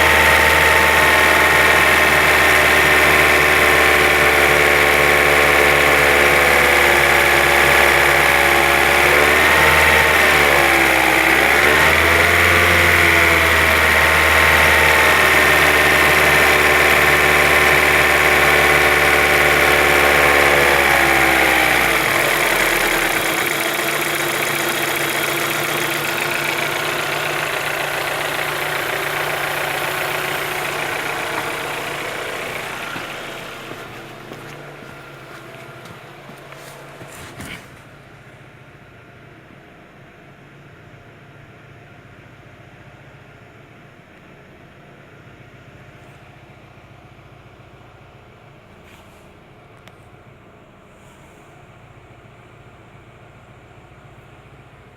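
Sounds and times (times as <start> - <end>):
car engine running: 0.0 - 41.1.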